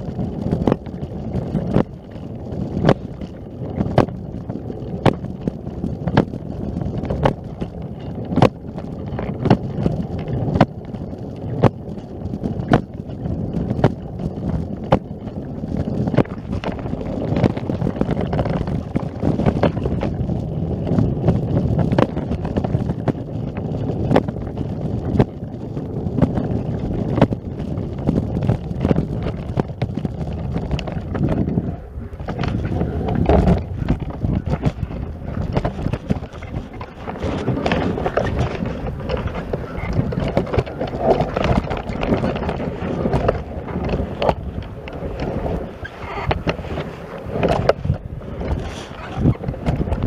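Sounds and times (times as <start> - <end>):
wind rumbling on microphone: 0.0 - 50.0.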